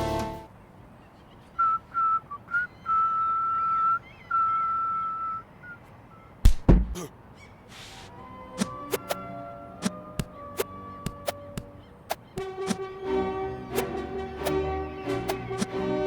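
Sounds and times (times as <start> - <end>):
sharp thuds: 6.4 - 7.1, 8.6 - 9.2, 9.8 - 12.9, 15.3 - 15.8.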